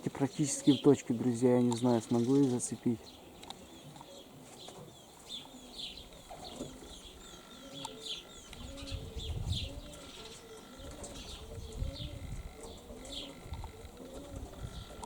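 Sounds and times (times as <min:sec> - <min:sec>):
small birds chirping: 0:00.0 - 0:15.0
low bird call: 0:02.1 - 0:15.0
wind gusts on microphone: 0:08.5 - 0:10.2, 0:10.8 - 0:15.0.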